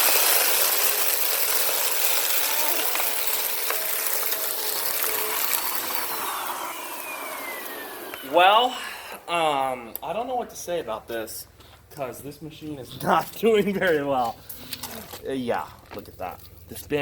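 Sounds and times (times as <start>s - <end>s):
vacuum cleaner running: 0.0s - 9.3s.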